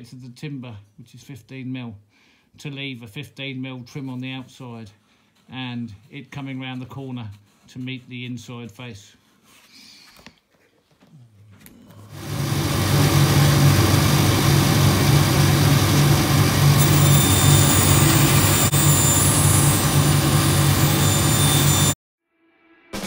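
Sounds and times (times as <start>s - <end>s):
bandsaw cutting wood: 12.1s - 22.0s
dust extraction running: 12.1s - 22.0s.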